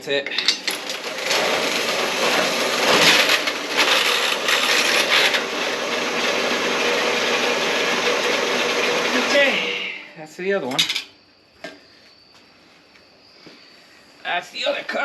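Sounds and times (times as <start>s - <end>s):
bandsaw cutting metal: 0.4s - 10.1s.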